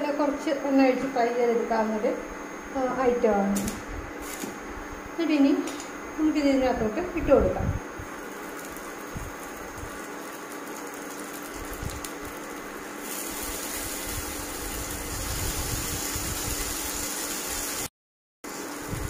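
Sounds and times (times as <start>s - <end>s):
cooling fan hum: 0.0s - 17.9s, 18.5s - 19.0s
okra sizzling in oil: 8.0s - 17.9s.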